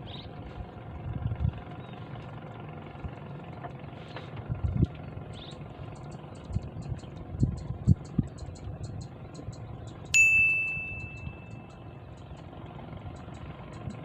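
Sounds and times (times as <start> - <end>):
bright metallic ding: 10.2 - 11.7.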